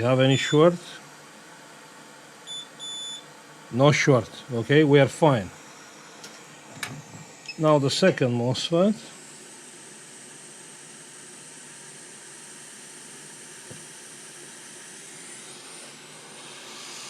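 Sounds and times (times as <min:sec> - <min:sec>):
faint high whine: 0:00.0 - 0:17.0
air hiss from blower: 0:03.6 - 0:17.0.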